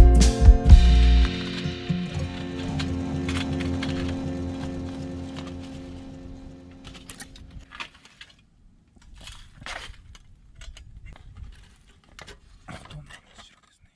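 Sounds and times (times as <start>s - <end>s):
music: 0.0s - 7.6s.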